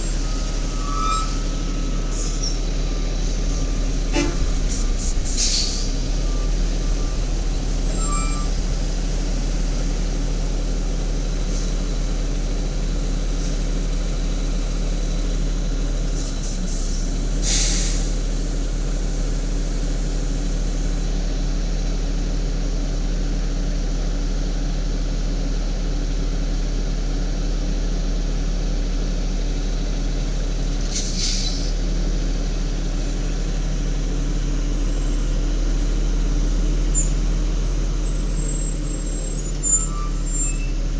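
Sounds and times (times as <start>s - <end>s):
garbage truck engine idling: 1.4s - 16.1s
air brake hiss: 4.1s - 6.0s, 16.2s - 18.2s, 30.9s - 31.7s.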